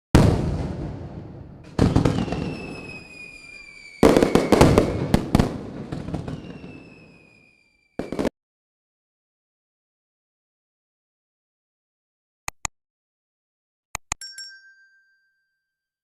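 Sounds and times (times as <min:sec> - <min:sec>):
fireworks bangs: 0:00.1 - 0:08.3
fireworks crackling: 0:00.2 - 0:08.3
fireworks whistles falling in pitch: 0:01.7 - 0:08.3.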